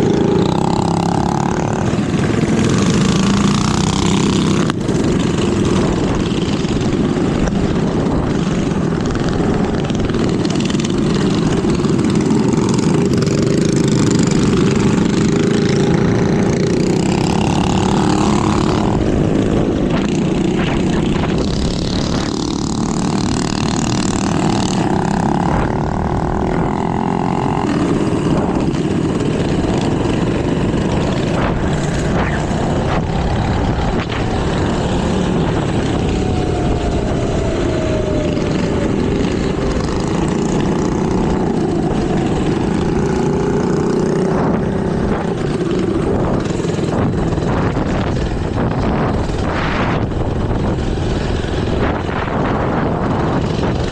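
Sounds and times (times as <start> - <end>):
small motorbike engines droning: 0.0 - 53.9.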